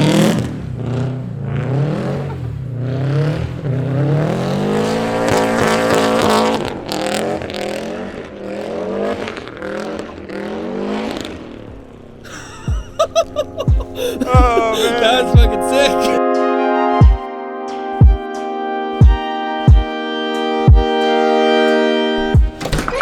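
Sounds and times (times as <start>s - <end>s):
car engine revving hard: 0.0s - 16.2s.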